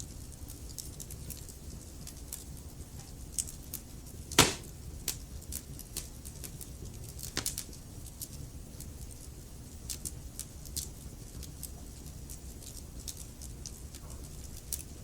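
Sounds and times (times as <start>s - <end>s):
wood fire crackling and popping: 3.3s - 8.8s.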